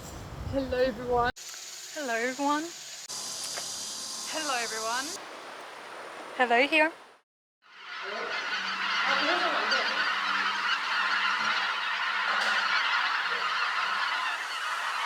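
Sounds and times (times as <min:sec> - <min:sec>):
flock of birds honking: 0:07.6 - 0:15.0.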